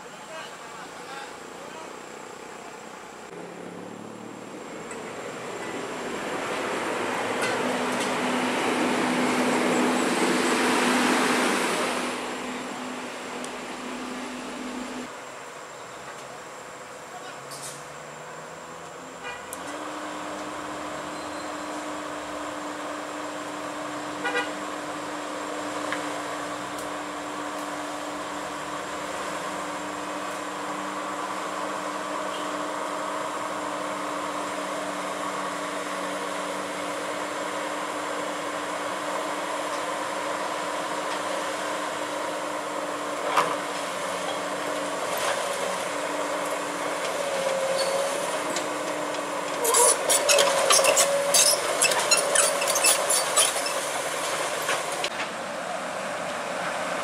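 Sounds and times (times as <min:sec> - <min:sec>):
heavy machinery whine and drone: 0:01.3 - 0:16.8.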